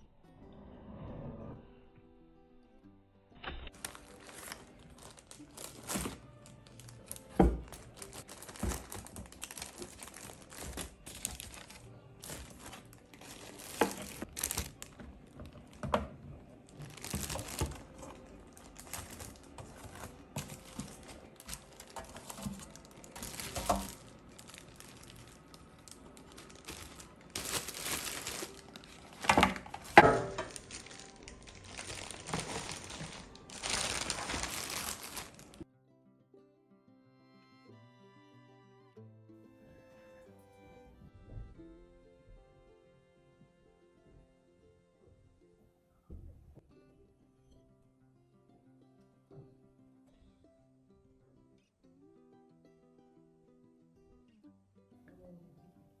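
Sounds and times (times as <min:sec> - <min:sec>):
faint background music: 0:00.0 - 0:56.0
crinkling and rustling: 0:03.7 - 0:35.6.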